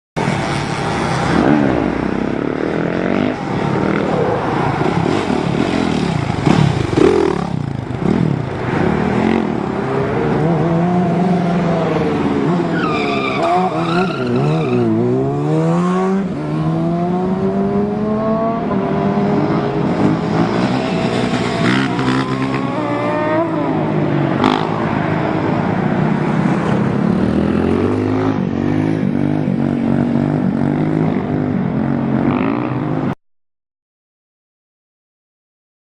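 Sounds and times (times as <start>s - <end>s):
motorcycle engine revving: 0.2s - 25.0s
other engines: 0.2s - 33.2s.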